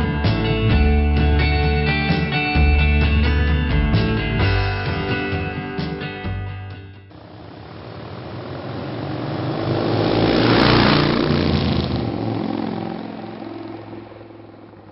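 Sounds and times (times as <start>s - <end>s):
motor vehicle passing by: 7.4s - 14.9s.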